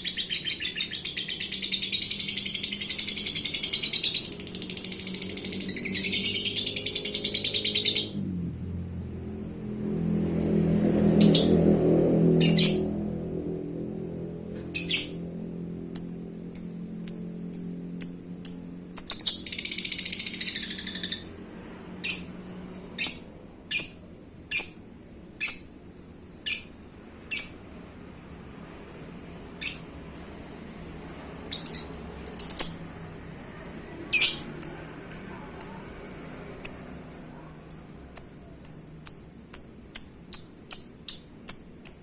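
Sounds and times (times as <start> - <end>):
buzzy bird chatter: 0.0 - 8.2, 14.8 - 15.3, 15.9 - 21.4, 23.0 - 25.8, 26.4 - 27.7, 31.5 - 32.9, 34.2 - 42.0
lovebird chirping: 0.0 - 8.2, 11.2 - 11.6, 12.4 - 12.9, 14.7 - 15.3, 15.9 - 21.4, 22.0 - 22.4, 23.0 - 27.7, 29.6 - 30.0, 31.5 - 32.9, 34.1 - 42.0.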